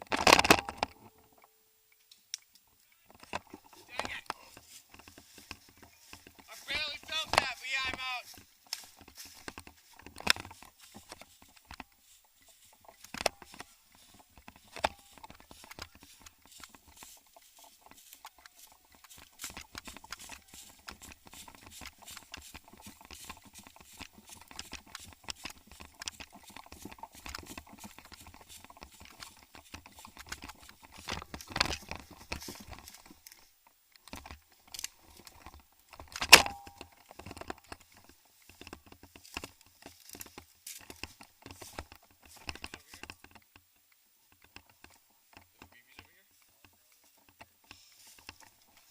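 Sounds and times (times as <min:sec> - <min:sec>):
rustling: 0:00.0 - 0:48.9
scattered clicks: 0:00.0 - 0:48.9.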